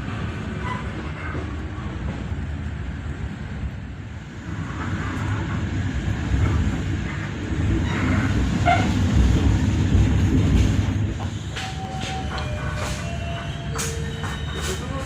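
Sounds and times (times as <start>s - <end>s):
train rumbling on rails: 0.0s - 15.0s
train squeaks: 0.6s - 1.4s, 7.6s - 9.1s, 10.5s - 15.0s.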